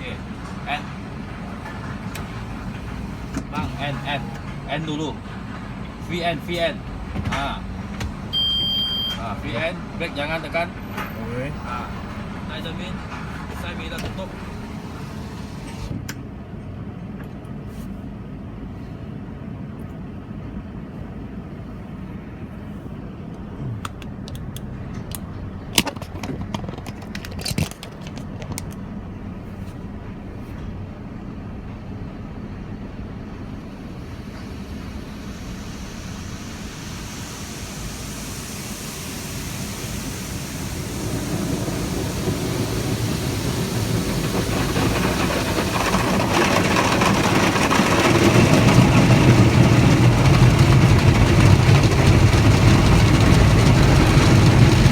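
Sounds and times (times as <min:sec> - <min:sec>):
car wash hiss: 0:00.0 - 0:05.2, 0:07.4 - 0:16.0, 0:33.1 - 0:54.9
car wash machinery hum: 0:00.0 - 0:54.9
knocks and clicks: 0:23.8 - 0:28.8.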